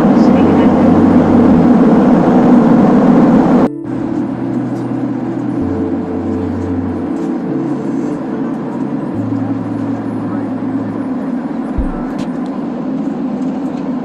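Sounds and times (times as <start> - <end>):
airliner cabin noise: 0.0 - 14.0
sustained low stepping tones: 11.8 - 12.5.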